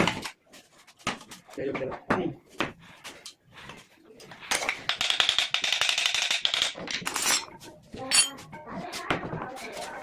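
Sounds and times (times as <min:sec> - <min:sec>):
metal tools clattering: 0:06.9 - 0:08.5
ringing metal clink: 0:08.1 - 0:08.4.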